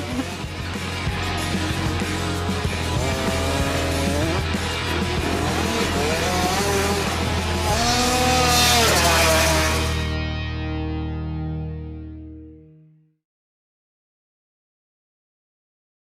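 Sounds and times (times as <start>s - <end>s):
dirt bike engines revving: 0.0s - 10.2s
rock music: 0.0s - 12.9s.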